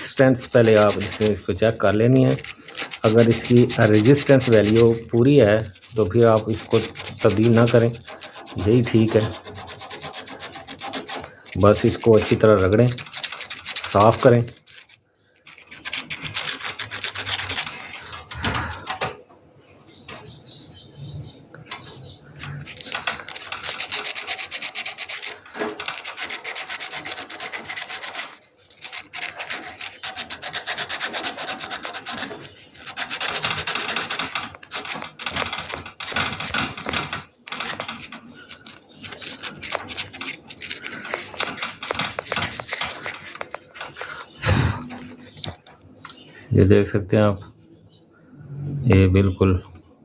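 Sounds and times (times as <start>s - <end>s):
sandpaper scrubbing metal: 0.0s - 18.1s, 22.4s - 43.6s.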